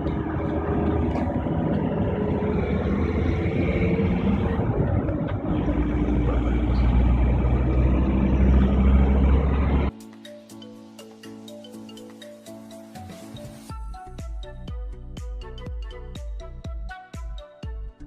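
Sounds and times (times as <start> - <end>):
deep low rumble: 0.0 - 9.9
vehicle engine hum: 0.0 - 9.9
road noise: 0.0 - 10.0.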